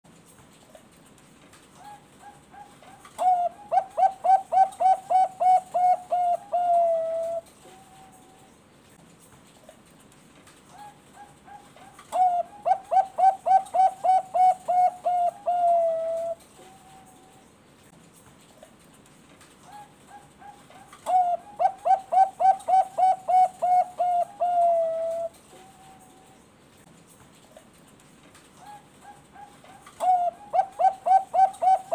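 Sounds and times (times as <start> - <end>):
dove cooing and singing: 1.8 - 8.5, 10.7 - 17.4, 19.7 - 26.4, 28.6 - 31.9.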